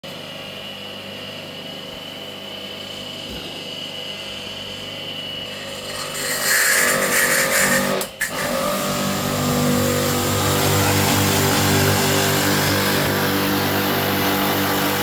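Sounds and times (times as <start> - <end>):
electric motor whining: 5.4 - 15.0.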